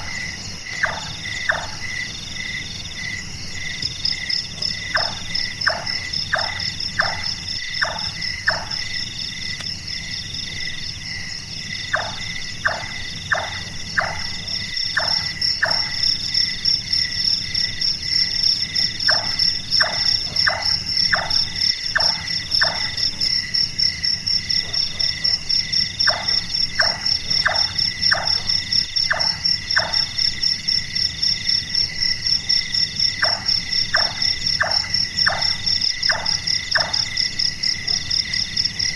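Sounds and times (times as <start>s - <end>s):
high insect trill: 0.0s - 38.9s
nightjar chonk calls: 0.7s - 2.0s, 11.9s - 16.1s, 26.0s - 30.3s.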